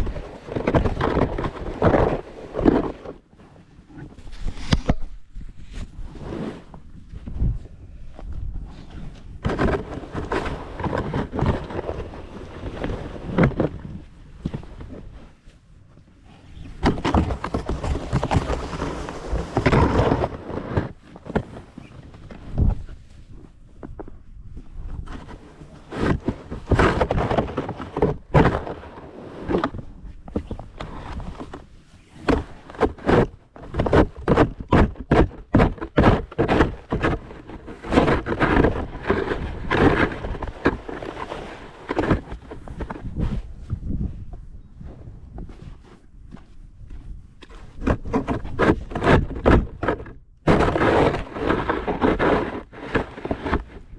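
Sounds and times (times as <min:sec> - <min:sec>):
snow shovel scraping snow: 0:05.6 - 0:06.8, 0:17.3 - 0:21.9, 0:35.9 - 0:43.4, 0:50.5 - 0:53.9.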